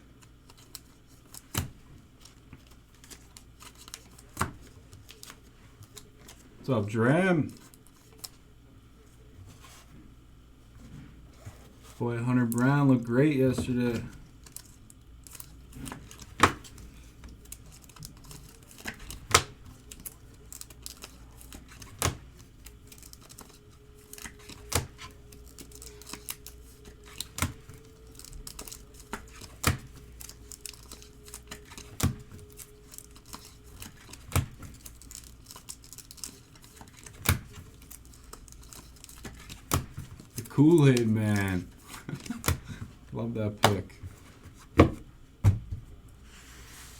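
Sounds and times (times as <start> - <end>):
wrapper crinkling and tearing: 2.2 - 6.4, 14.0 - 42.7.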